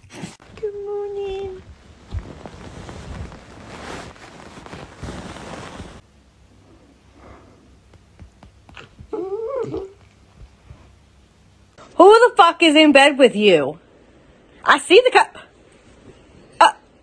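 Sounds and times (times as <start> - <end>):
noisy rustling: 0.3 - 9.2.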